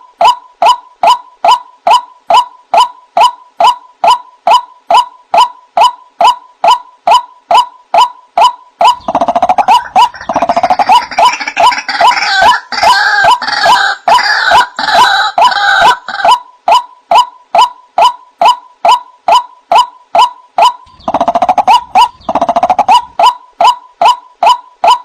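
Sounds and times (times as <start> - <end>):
waterhen kwak calls: 2.8 - 25.0
harsh croaking and gurgling calls: 8.8 - 16.4, 20.6 - 24.2.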